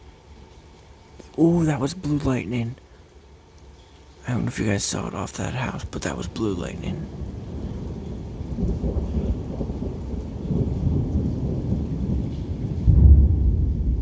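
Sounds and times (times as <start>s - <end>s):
rain falling: 0.0s - 14.0s
thunder rumbling: 6.0s - 14.0s.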